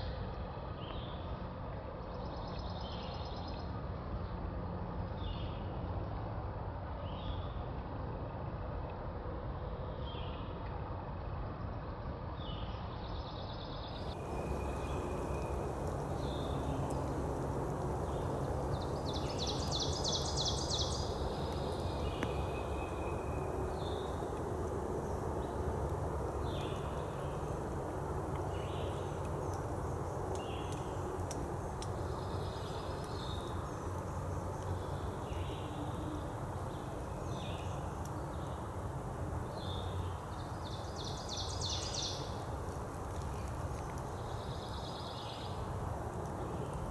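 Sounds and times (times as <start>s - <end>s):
low background rumble: 14.0s - 46.9s
songbirds singing: 14.0s - 46.9s.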